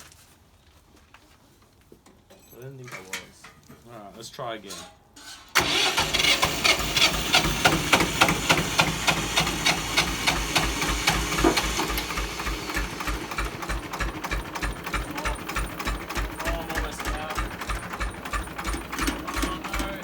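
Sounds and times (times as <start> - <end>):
tractor starter cranking engine: 5.2 - 20.0.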